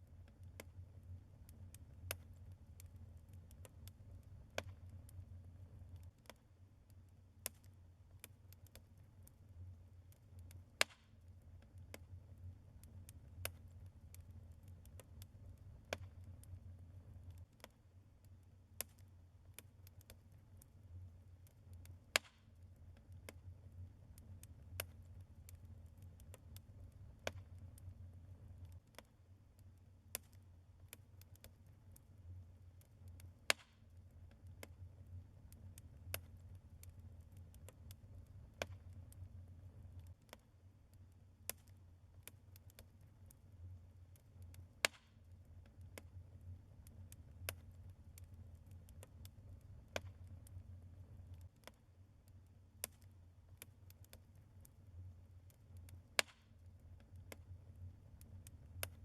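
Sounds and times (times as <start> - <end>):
logs crackling in fireplace: 0.0 - 59.0
fire pops and snaps: 0.2 - 59.0.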